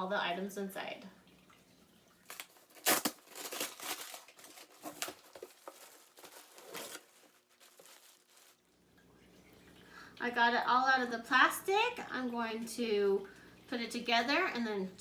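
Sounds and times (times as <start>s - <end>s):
plastic packaging crinkling and tearing: 2.2s - 8.9s.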